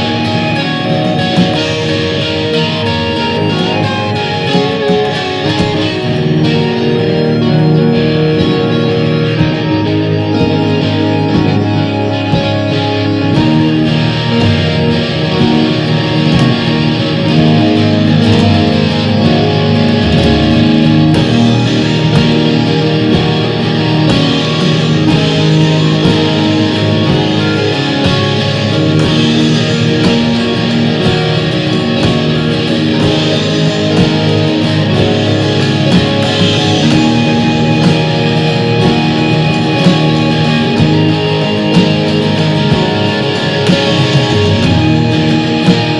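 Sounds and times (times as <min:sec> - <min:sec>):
drums: 0:00.0 - 0:45.9
electric guitar: 0:00.0 - 0:45.9
synth: 0:00.0 - 0:45.9
sharp drum hits: 0:16.3 - 0:38.0.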